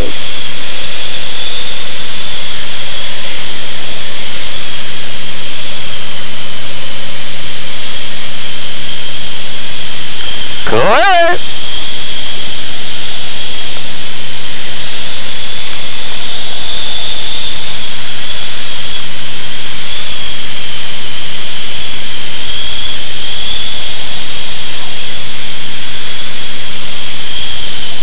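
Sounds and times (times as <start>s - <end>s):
high whine: 10.7s - 11.4s.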